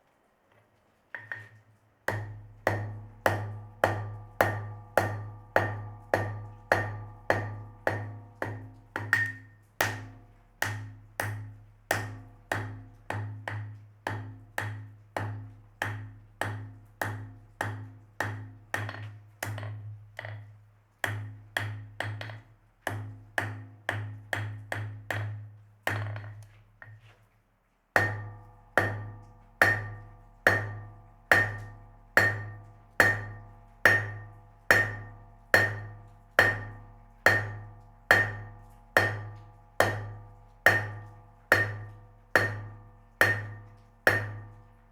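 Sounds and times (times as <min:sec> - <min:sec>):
hammer striking steel on anvil: 0:02.1 - 0:18.9, 0:28.0 - 0:44.6.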